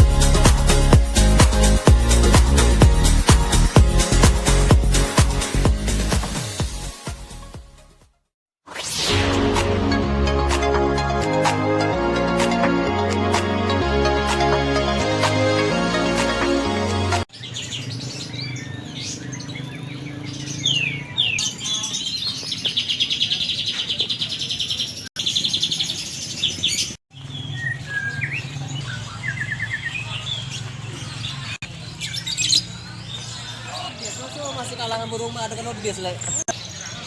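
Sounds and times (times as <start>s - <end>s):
music: 0.0s - 17.3s
fast bird trill: 17.3s - 37.0s
songbirds singing: 17.3s - 37.0s.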